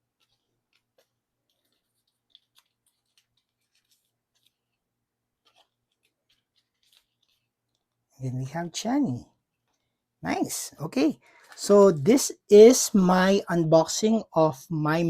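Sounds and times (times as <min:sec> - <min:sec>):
clicks and rustles of cards: 0:00.1 - 0:04.8, 0:05.4 - 0:08.0.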